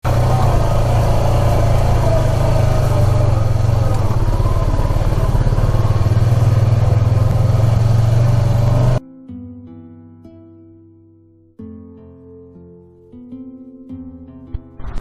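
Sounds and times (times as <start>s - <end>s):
engine running with low hum: 0.0s - 9.0s.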